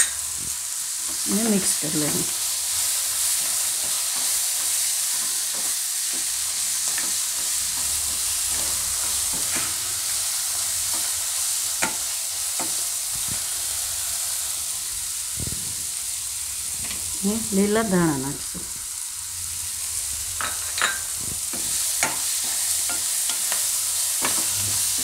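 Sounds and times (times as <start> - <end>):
leaves sizzling in hot oil: 0.0 - 25.0
wooden spatula scraping wok: 21.3 - 25.0.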